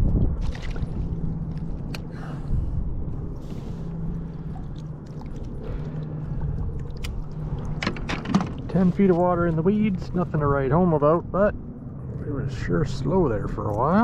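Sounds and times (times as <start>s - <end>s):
steady low hum and rumble: 0.0s - 14.0s
water sloshing: 0.3s - 2.1s, 3.2s - 10.2s
handling noise on a kayak: 6.5s - 9.4s.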